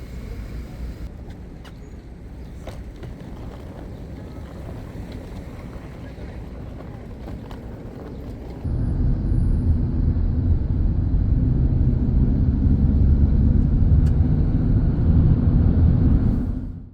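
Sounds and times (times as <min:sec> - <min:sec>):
low engine rumble: 0:00.0 - 0:16.9.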